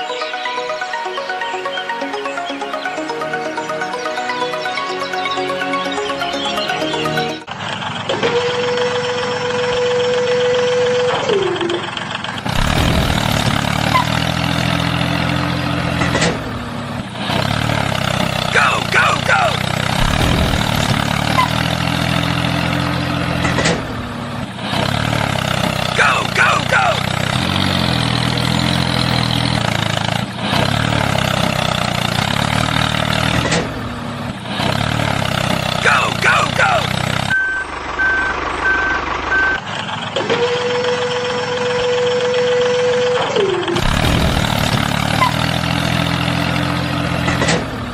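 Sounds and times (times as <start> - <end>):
engine idling: 0.0 - 47.9
motor humming: 19.7 - 22.8, 43.8 - 45.4.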